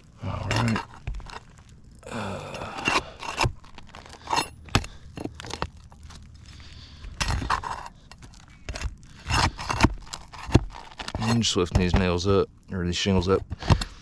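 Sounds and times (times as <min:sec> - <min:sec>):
metal bar scraping under shingles: 0:00.3 - 0:01.6, 0:02.6 - 0:05.7, 0:07.0 - 0:12.0.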